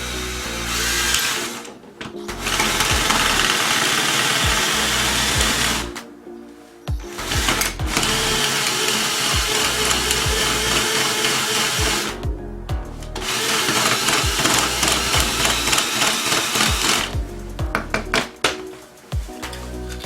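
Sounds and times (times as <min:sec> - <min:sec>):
small power tool whirring: 0:00.0 - 0:01.6, 0:02.4 - 0:05.9, 0:07.3 - 0:12.1, 0:13.2 - 0:17.1
music with thumping beat: 0:02.1 - 0:05.8, 0:06.9 - 0:08.4, 0:09.3 - 0:10.9, 0:11.7 - 0:20.0.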